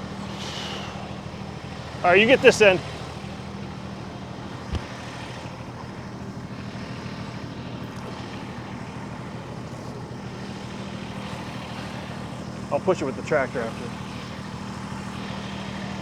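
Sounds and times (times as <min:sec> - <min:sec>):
engine idling: 0:00.0 - 0:16.0
short low thump: 0:04.7 - 0:05.0.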